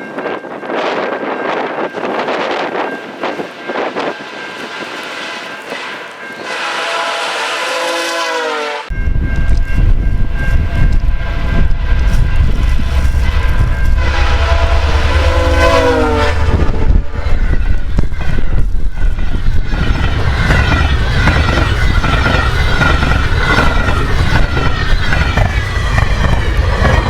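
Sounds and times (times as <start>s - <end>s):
passing train rumble: 0.0s - 27.0s
train air horn chord: 5.3s - 9.0s, 12.8s - 17.4s
wind on microphone: 8.9s - 27.0s.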